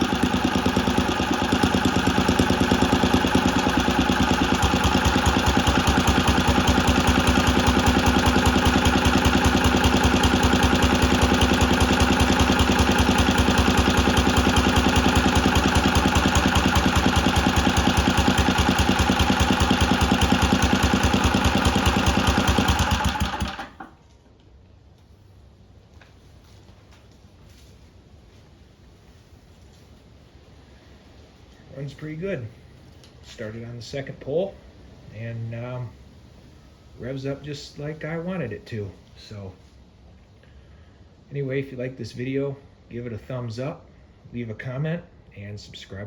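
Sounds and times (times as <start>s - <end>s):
small engine running steadily: 0.0s - 24.0s.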